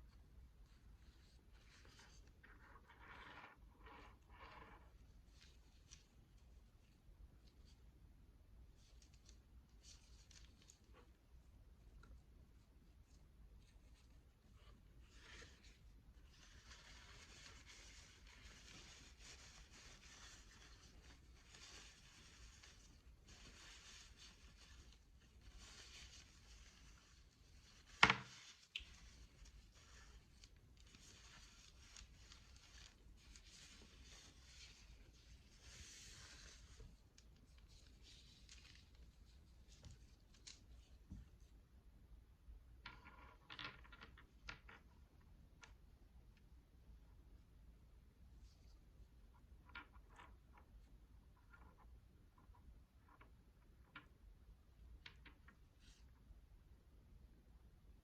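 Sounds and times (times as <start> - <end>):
soft rustling of beads: 0.0 - 58.0
prayer beads rustling: 13.6 - 41.2.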